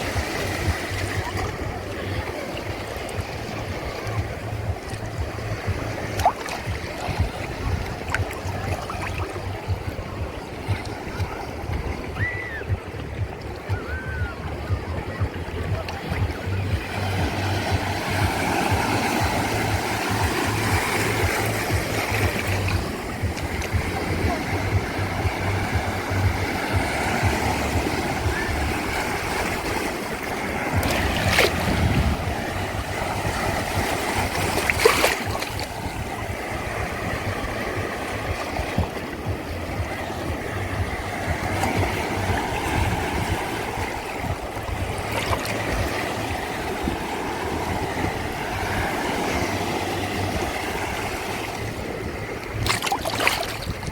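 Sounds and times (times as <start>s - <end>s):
sea waves washing onto shore: 0.0s - 53.9s.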